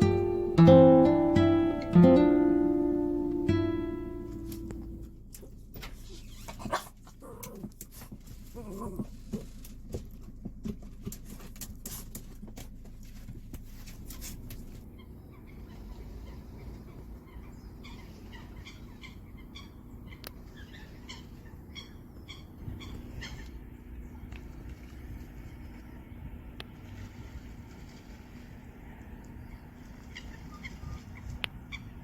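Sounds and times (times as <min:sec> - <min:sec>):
low steady hum: 0:00.0 - 0:32.0
birds chirping: 0:14.0 - 0:26.8, 0:28.8 - 0:32.0.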